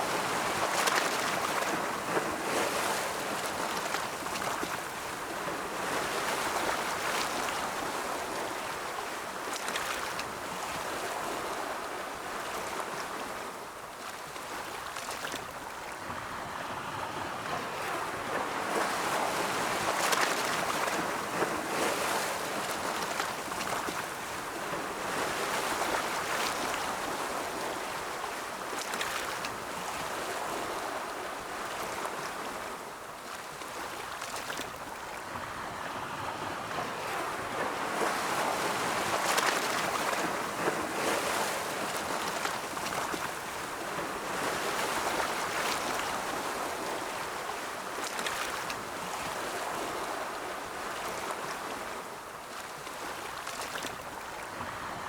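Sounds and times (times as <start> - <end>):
ocean waves breaking: 33.7 - 55.0.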